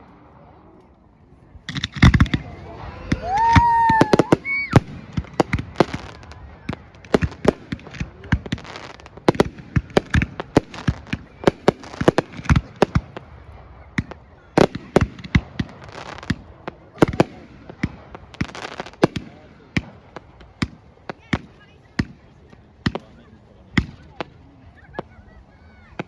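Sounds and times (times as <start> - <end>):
fireworks bangs and crackles: 1.6 - 26.0
firework whistle: 2.5 - 4.9.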